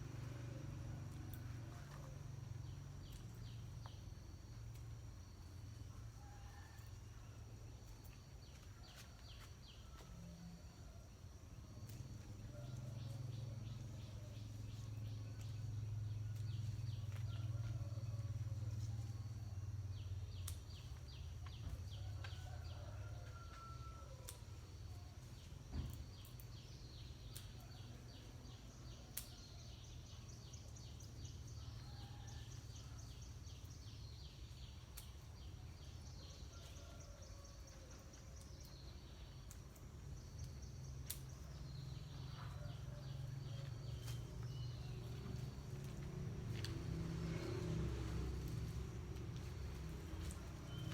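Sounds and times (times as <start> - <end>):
low steady rumble: 0.0 - 8.0, 39.4 - 50.9.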